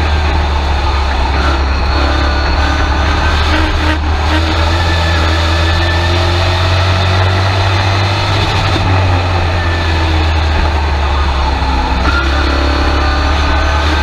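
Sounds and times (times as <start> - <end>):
truck engine running loud: 0.0 - 14.0.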